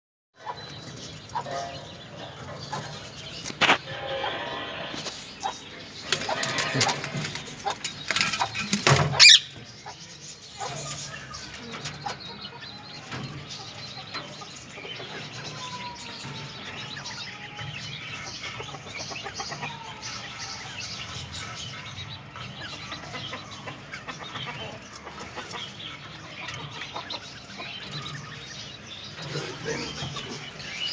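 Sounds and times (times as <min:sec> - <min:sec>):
parrots chattering and squawking: 0:00.5 - 0:13.2, 0:14.3 - 0:30.9.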